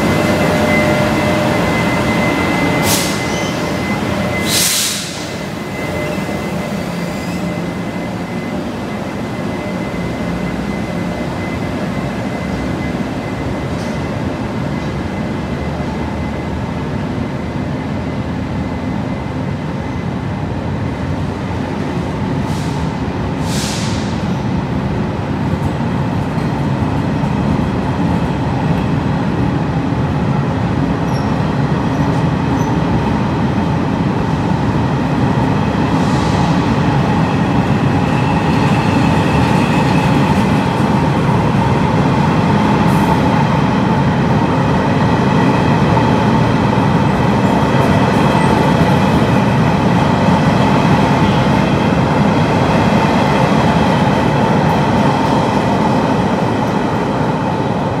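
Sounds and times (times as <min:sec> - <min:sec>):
high ringing tone: 0:00.0 - 0:14.2
train wheels rumbling on rails: 0:00.0 - 0:58.0.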